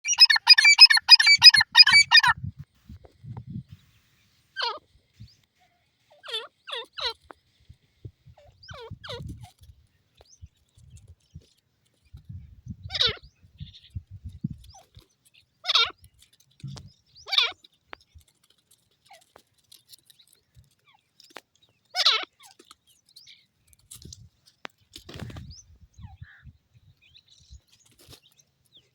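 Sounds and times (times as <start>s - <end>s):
bird calling falling notes: 0.0s - 2.4s
faint low thuds and rumbles: 2.4s - 3.9s, 16.6s - 17.0s.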